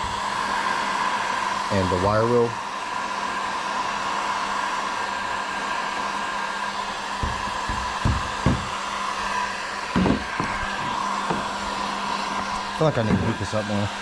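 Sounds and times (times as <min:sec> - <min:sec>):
heat gun blowing with whine: 0:00.0 - 0:14.0
low handling knocks: 0:07.2 - 0:08.7, 0:10.0 - 0:10.6.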